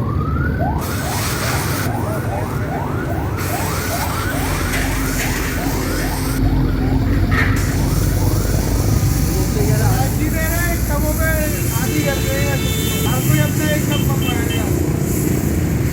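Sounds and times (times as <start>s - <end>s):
siren-like rising whoops: 0.0s - 9.3s
machine or traffic noise: 0.0s - 15.9s.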